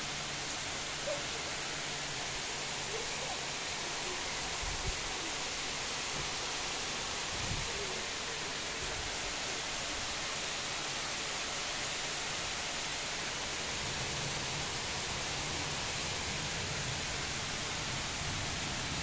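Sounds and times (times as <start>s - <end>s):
pouring rain hiss: 0.0s - 19.0s.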